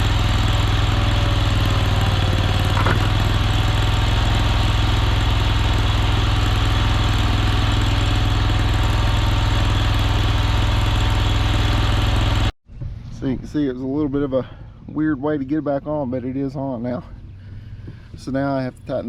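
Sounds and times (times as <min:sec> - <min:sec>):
skid steer engine running: 0:00.0 - 0:12.6.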